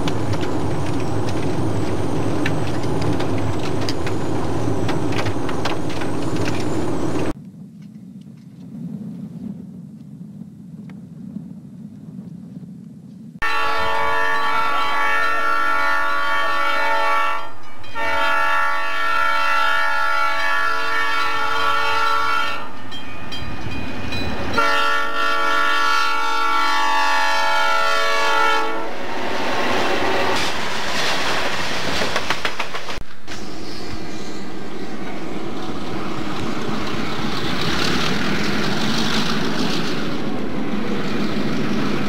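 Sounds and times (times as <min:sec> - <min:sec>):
freight cars rumbling and clacking: 0:00.0 - 0:07.4, 0:29.2 - 0:33.7, 0:34.9 - 0:42.0
locomotive air horn blasts: 0:13.4 - 0:22.8, 0:24.6 - 0:29.0.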